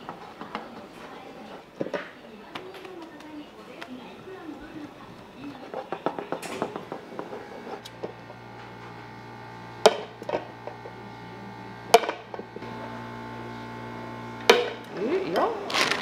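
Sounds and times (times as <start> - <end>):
low machine hum: 6.7 - 16.0.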